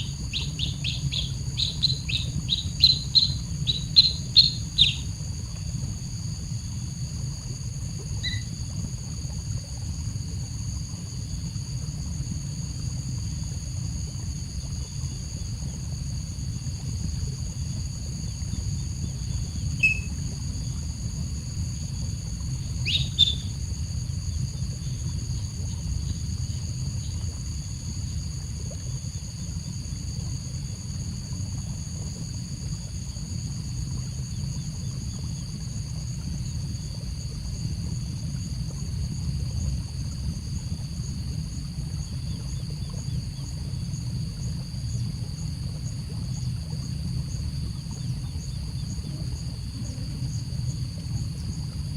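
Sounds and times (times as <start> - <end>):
bird chirps: 0.0 - 5.1, 8.2 - 8.5, 19.8 - 20.1, 22.8 - 23.5
steady high whine: 0.0 - 6.7.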